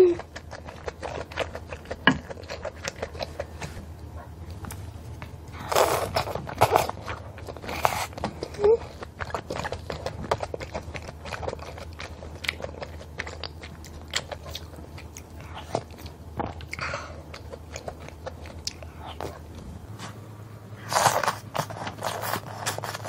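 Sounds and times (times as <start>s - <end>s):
steady low hum: 0.0s - 23.0s
chewing mouth clicks: 5.7s - 19.4s.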